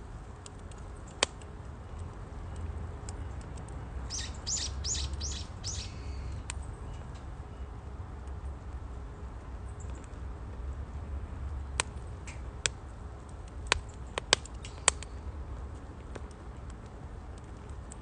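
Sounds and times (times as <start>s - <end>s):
firewood crackling: 0.0s - 7.4s, 8.1s - 18.0s
fire pops and snaps: 0.4s - 2.1s, 11.6s - 18.0s.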